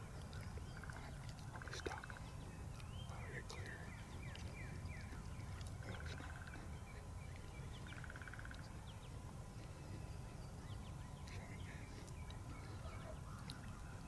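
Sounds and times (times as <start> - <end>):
faint wild birds calling: 0.0 - 14.0
steady low rumble: 0.0 - 14.0.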